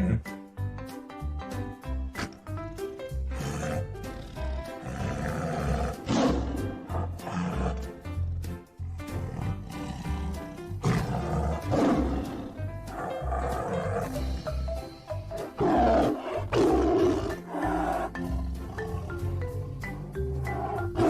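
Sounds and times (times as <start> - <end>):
background music with steady beat: 0.0 - 21.0
tiger roaring: 3.3 - 14.3, 15.4 - 21.0.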